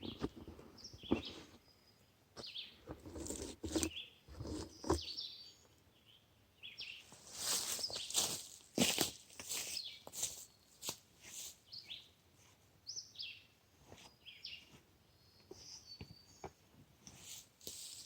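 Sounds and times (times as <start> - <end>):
faint bird chirps: 12.8 - 16.6.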